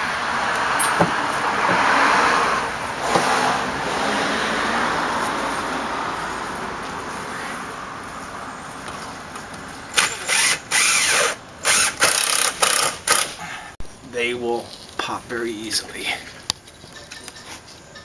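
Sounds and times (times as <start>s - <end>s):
vehicle passing by: 0.0s - 10.0s.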